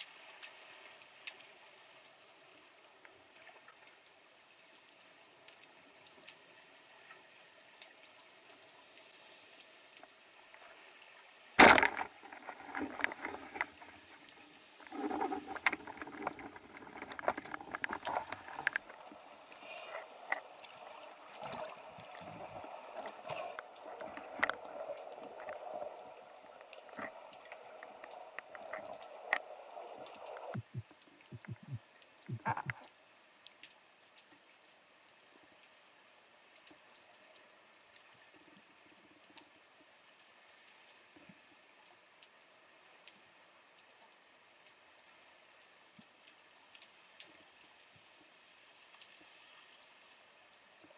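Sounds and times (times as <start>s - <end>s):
underwater clicks: 11.6s - 19.0s, 21.4s - 25.7s, 26.5s - 33.0s
water sloshing: 11.6s - 32.9s.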